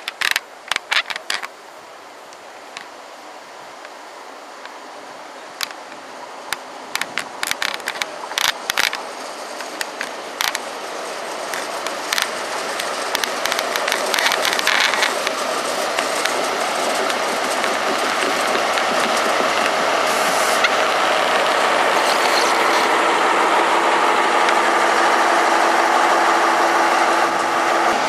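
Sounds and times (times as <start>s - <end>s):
sharp clicks and ticks: 0.0s - 1.5s, 6.5s - 10.7s, 11.4s - 22.9s
train approaching: 0.0s - 28.0s.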